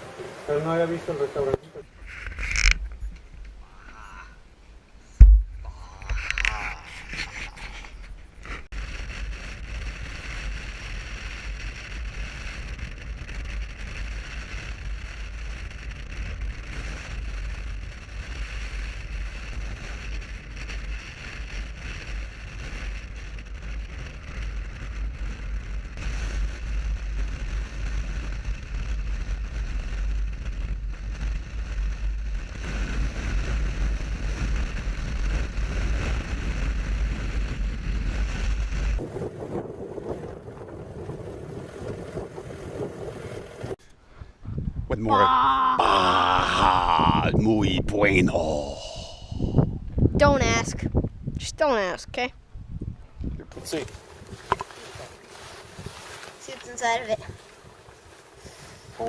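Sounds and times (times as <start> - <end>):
wind buffeting microphone: 0.0 - 45.4, 46.2 - 59.0
motorcycle engine running: 8.8 - 43.8.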